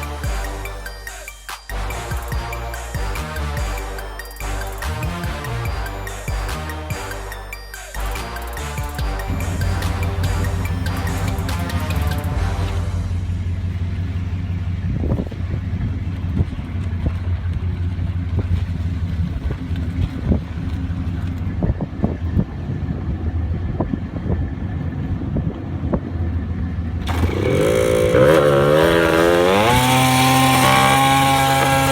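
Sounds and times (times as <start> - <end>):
small motorcycle engine idling and revving: 7.9 - 31.9.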